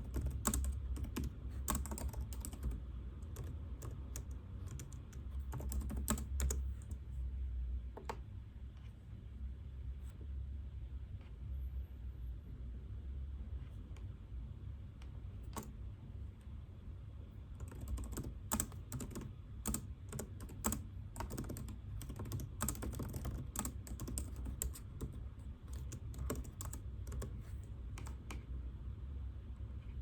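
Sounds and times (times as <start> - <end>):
typing on computer keyboard: 0.0 - 7.0, 15.5 - 15.7, 17.6 - 28.4
low room hum: 0.0 - 30.0.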